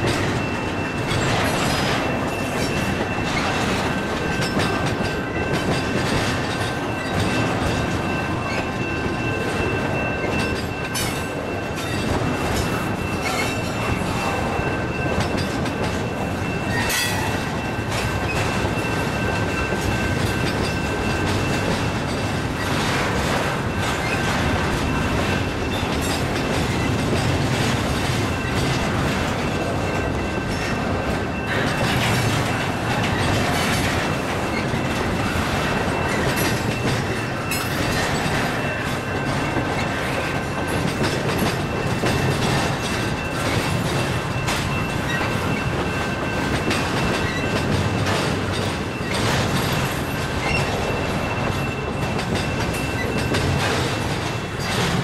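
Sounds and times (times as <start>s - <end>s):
train wheels rumbling on rail: 0.0s - 55.0s
wheels clacking over rail joints: 0.0s - 55.0s
high wheel squeal: 48.8s - 54.7s.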